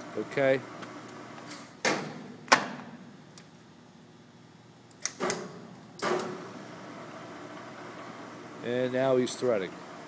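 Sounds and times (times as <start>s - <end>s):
lathe levers clunking: 5.0s - 6.5s.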